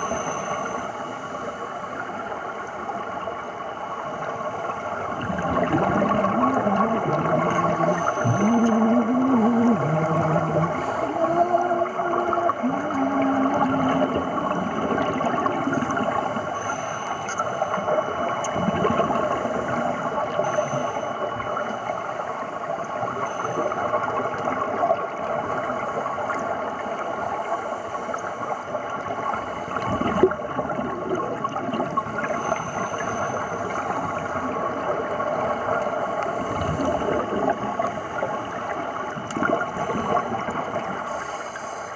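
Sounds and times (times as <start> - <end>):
wavering hum: 5.0 - 25.9
underwater regulator bubbling: 5.2 - 21.8.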